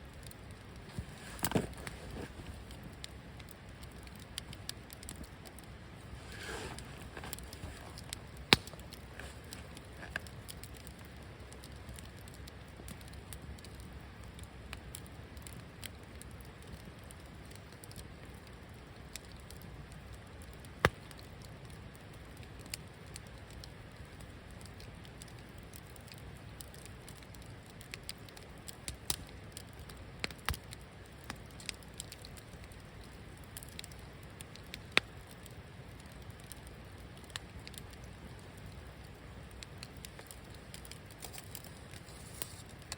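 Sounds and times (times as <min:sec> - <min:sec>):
fire crackles and pops: 0:00.0 - 0:42.9
wood fire rushing: 0:00.6 - 0:11.1, 0:39.7 - 0:42.9.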